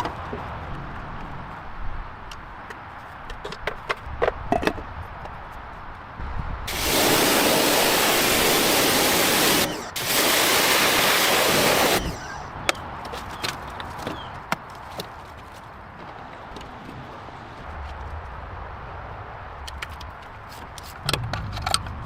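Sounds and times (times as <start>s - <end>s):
hiss of rushing air or spray: 6.7s - 12.1s.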